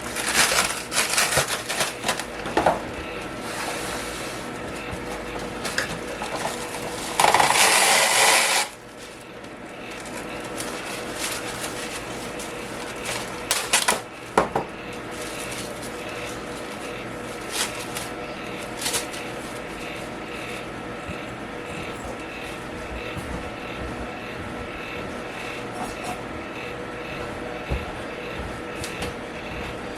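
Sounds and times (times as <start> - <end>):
plastic wrap crackling: 0.0 - 2.6, 3.2 - 20.7
plastic wrap crinkling: 0.0 - 20.7
fan humming: 0.0 - 29.9.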